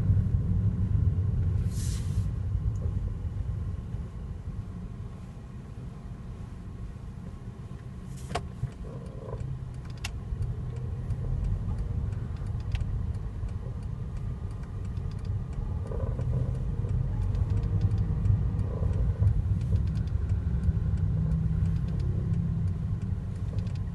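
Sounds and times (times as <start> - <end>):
car cabin road rumble: 0.0 - 23.9
sharp clicks: 8.4 - 23.9.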